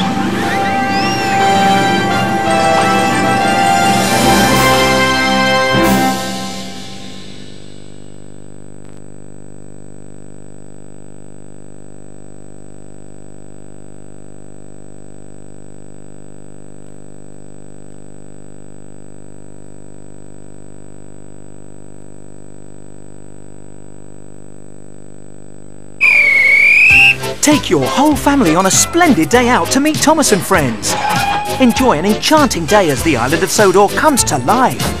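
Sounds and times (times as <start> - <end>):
loud whistle: 0.0 - 2.2, 26.0 - 27.3.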